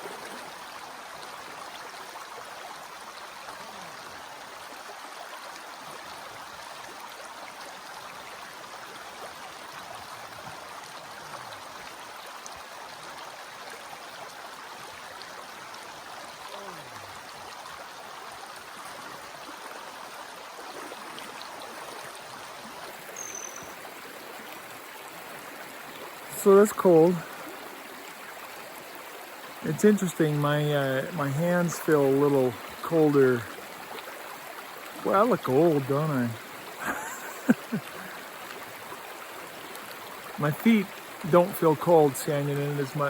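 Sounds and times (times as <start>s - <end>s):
river rushing: 14.8s - 43.0s.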